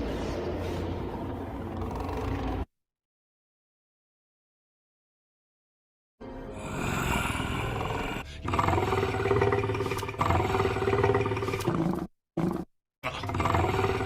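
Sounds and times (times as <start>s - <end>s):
growling creature roar: 1.2s - 2.7s, 6.6s - 14.0s.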